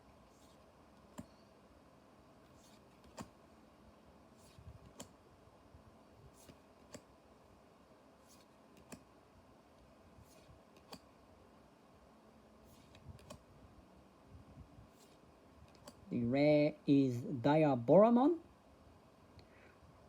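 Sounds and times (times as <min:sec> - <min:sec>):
cards sliding swishes: 0:00.2 - 0:01.3, 0:02.4 - 0:03.4, 0:04.3 - 0:05.2, 0:06.2 - 0:07.1, 0:08.2 - 0:09.1, 0:10.1 - 0:11.1, 0:12.6 - 0:13.5, 0:14.8 - 0:16.0
cards clicking when set down: 0:12.7 - 0:13.4.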